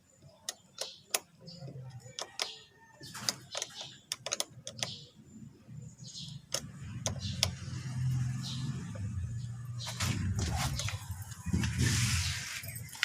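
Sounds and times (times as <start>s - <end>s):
sharp metallic clicks and knocks: 0.3s - 5.0s, 6.4s - 7.7s
engine rumble: 4.7s - 13.0s.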